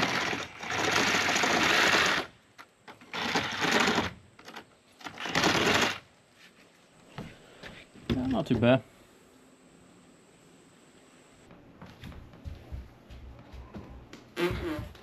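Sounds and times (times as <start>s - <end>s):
power drill cutting into wall: 0.0s - 2.3s.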